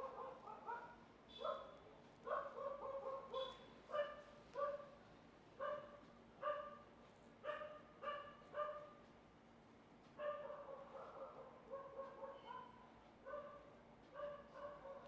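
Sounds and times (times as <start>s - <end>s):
dog barking: 0.0s - 5.0s, 5.6s - 9.0s, 10.2s - 15.0s.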